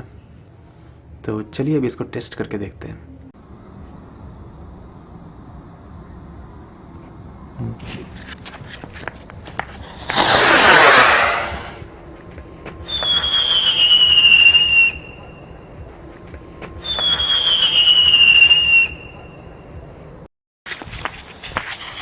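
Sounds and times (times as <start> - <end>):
firework rocket launch whoosh: 9.6 - 11.9, 20.7 - 22.0
firework whistles falling in pitch: 10.0 - 11.8, 12.8 - 15.5, 16.8 - 19.4.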